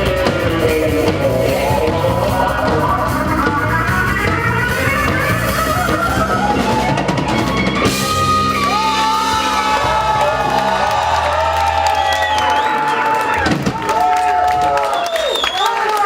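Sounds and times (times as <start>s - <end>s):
guitar and bass notes ringing: 0.0s - 11.6s
rock band playing: 0.0s - 14.8s.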